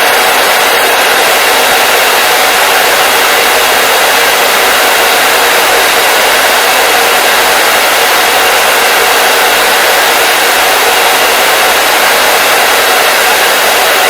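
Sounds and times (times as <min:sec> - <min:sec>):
hair dryer running: 0:00.0 - 0:14.0.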